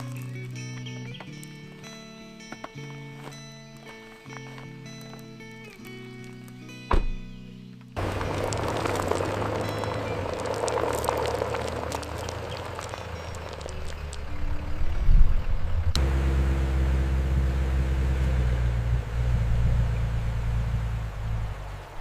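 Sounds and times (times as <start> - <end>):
truck engine humming: 7.9 - 22.0.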